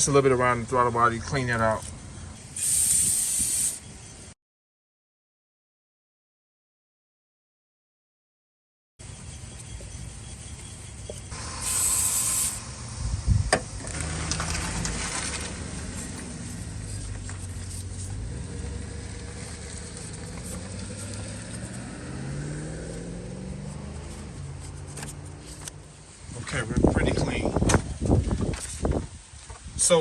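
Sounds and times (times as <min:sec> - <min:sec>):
aerosol can spraying: 0:02.6 - 0:03.8, 0:11.4 - 0:12.7, 0:15.8 - 0:18.4.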